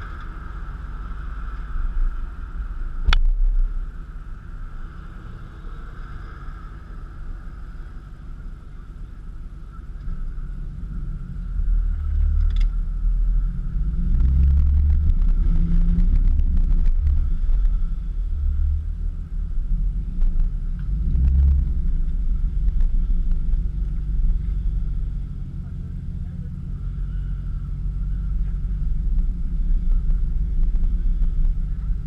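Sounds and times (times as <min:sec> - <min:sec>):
deep car exhaust note: 0:09.7 - 0:32.0.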